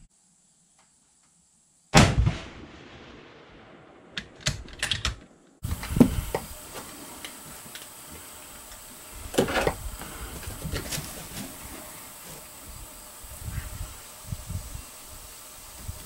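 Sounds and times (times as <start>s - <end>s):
rifle shot echo: 2.0s - 4.7s
hiss: 5.6s - 16.0s.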